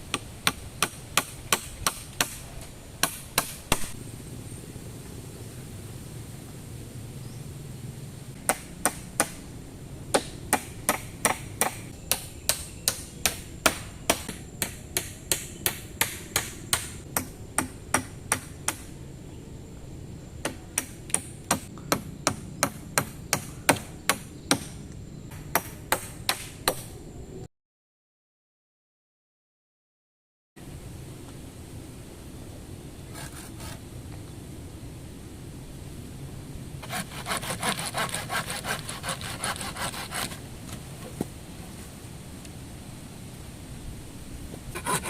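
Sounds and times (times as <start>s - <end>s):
low background noise: 0.0s - 27.5s, 30.6s - 45.0s
tool chopping wood: 8.4s - 9.4s, 10.1s - 18.9s, 20.4s - 26.9s.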